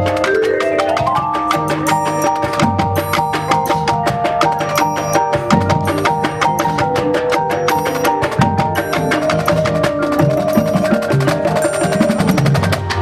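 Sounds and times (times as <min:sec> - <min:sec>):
bell-like mallet percussion: 0:00.0 - 0:13.0
marching band music: 0:00.0 - 0:13.0
rapid drum strikes: 0:00.0 - 0:13.0.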